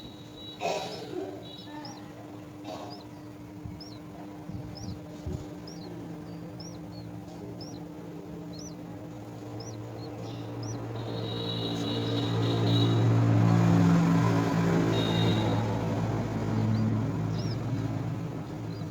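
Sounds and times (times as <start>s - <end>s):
bird chirping: 0.0s - 18.9s
steady low hum: 0.0s - 18.9s.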